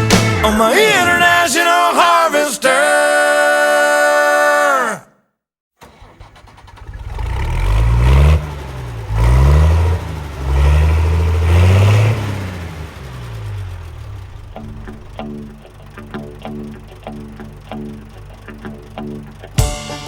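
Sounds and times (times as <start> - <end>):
engine revving: 5.8 - 19.6.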